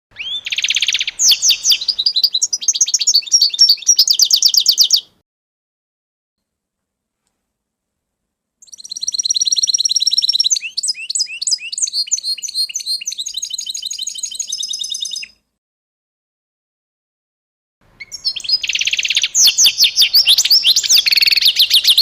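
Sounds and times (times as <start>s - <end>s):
songbird singing: 0.1s - 5.2s, 8.6s - 15.4s, 17.8s - 22.0s.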